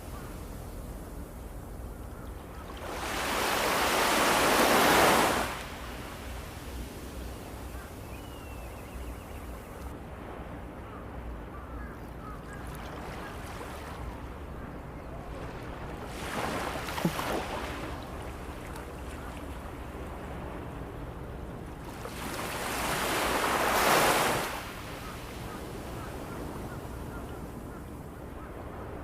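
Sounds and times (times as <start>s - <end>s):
low steady rush: 0.0s - 16.8s
ocean waves breaking on shore: 0.0s - 29.0s.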